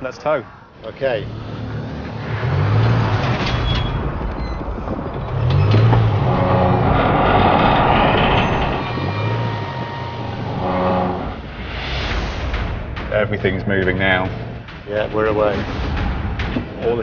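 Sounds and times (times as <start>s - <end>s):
car engine under load: 1.3s - 11.5s
heavy rumble of train: 2.8s - 17.0s.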